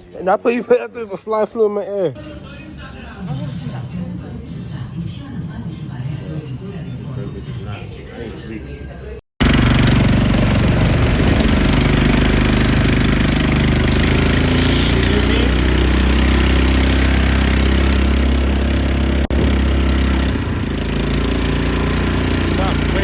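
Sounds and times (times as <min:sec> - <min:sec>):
quad bike engine running: 0:09.4 - 0:23.0.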